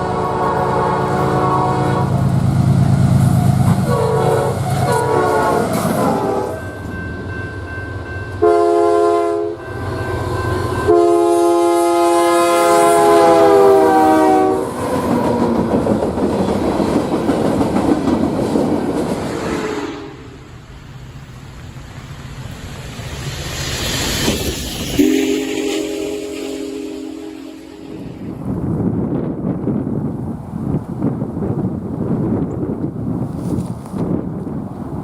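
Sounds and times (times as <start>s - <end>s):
locomotive air horn blasts: 0.0s - 2.3s, 3.7s - 6.6s, 8.4s - 9.8s, 10.8s - 14.8s, 19.6s - 20.4s, 25.0s - 28.4s
train rolling by on rails: 0.0s - 35.0s.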